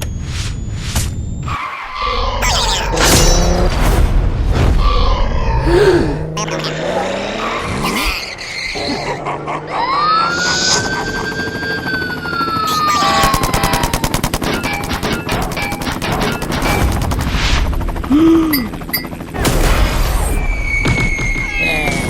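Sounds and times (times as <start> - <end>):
cartoon machine-gun fire: 12.7 - 16.8.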